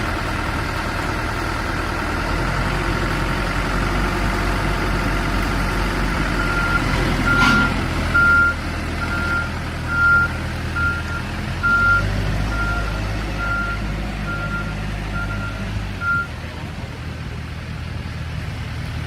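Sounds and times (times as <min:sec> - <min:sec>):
diesel engine running: 0:00.0 - 0:19.0
reverse alarm beeping: 0:06.4 - 0:16.3.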